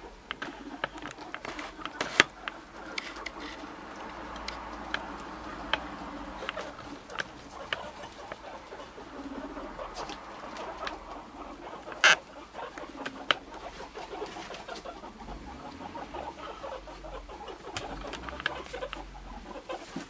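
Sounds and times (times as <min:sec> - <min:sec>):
guinea pigs rumbling calls: 0:00.0 - 0:20.0
small clicks and rustles: 0:00.1 - 0:08.4.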